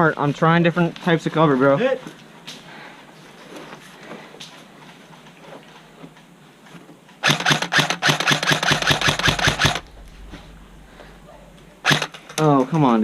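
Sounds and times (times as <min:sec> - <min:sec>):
airsoft rifle rapid fire clicks: 0:07.2 - 0:09.8.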